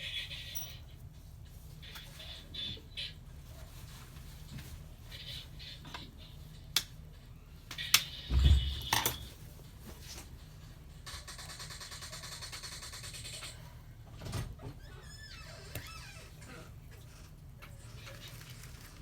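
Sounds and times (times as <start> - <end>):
heavy knock: 8.3 - 9.1.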